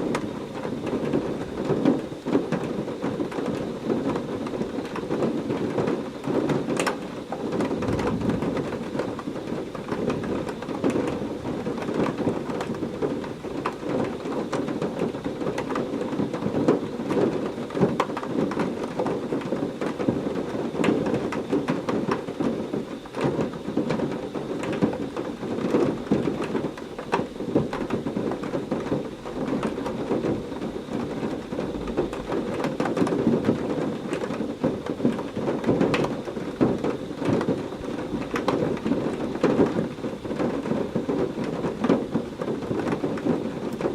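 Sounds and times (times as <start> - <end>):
heavy rain falling: 0.0 - 43.9
low rumble of thunder: 7.4 - 19.0, 23.2 - 43.9.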